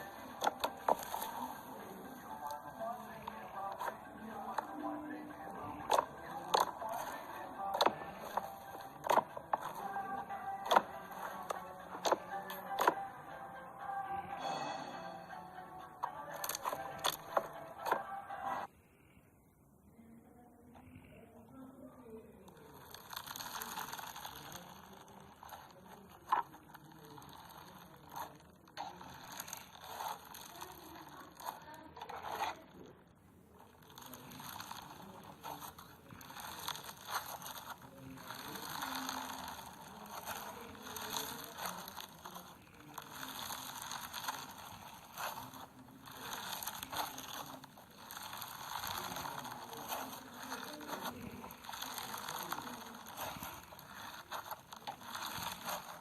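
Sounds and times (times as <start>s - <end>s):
slime crackling and popping: 0.0s - 13.1s, 16.3s - 18.0s, 22.4s - 32.9s, 33.5s - 56.0s.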